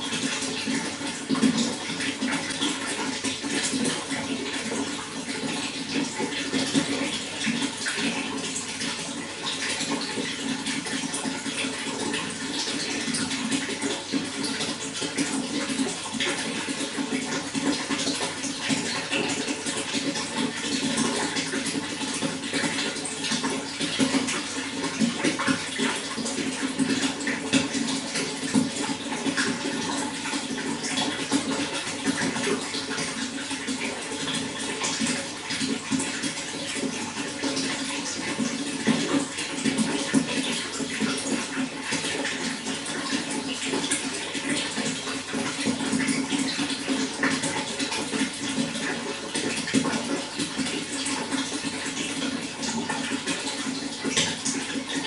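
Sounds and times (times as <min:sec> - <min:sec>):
running water with splashes: 0:00.0 - 0:55.0.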